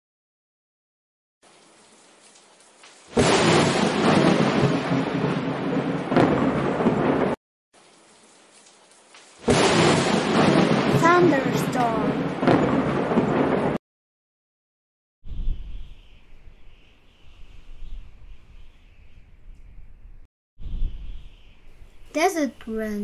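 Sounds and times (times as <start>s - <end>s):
heavy rain: 1.4s - 13.8s
thunder: 3.1s - 7.4s, 9.4s - 13.8s.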